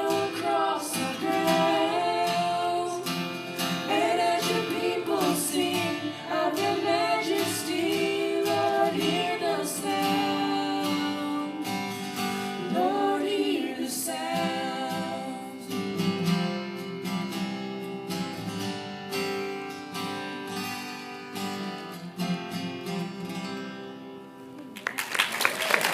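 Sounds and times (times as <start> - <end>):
children singing: 0.0 - 11.9, 12.6 - 15.6
strummed acoustic guitar: 0.0 - 24.6.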